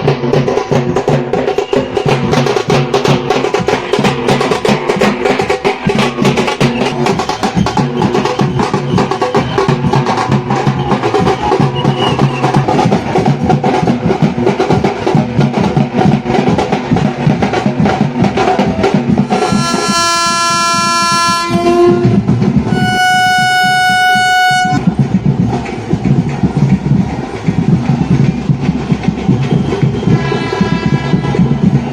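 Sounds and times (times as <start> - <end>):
rhythmic drumming: 0.0 - 31.9
train horn blasts: 19.3 - 24.9, 30.0 - 31.6.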